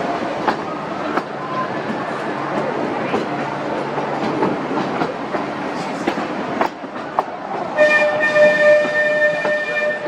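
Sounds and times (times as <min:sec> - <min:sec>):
train whistle: 0:07.8 - 0:10.0.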